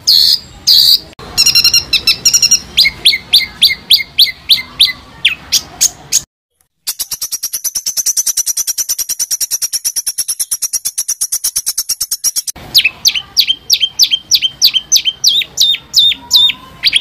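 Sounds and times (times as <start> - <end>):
songbird calls: 6.9 - 17.0.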